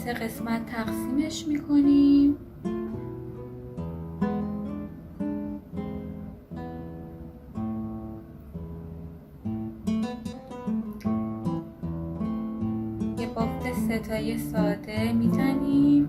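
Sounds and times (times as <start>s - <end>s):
acoustic guitar plucked chords: 0.0s - 16.0s.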